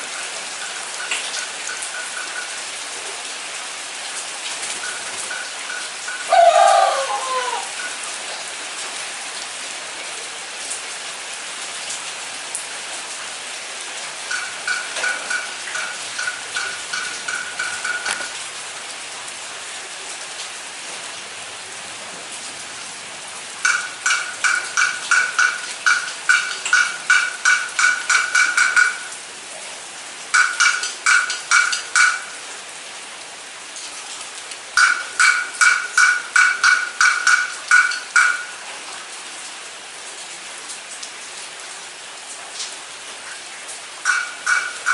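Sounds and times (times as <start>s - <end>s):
rain falling: 0.0s - 44.9s
loud call dropping in pitch: 6.3s - 7.7s.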